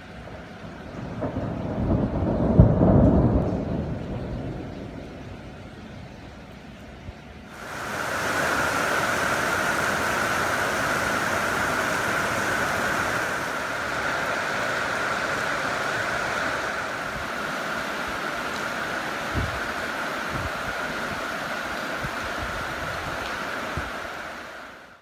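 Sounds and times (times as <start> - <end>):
heavy rain pouring on shelters: 0.0 - 25.0.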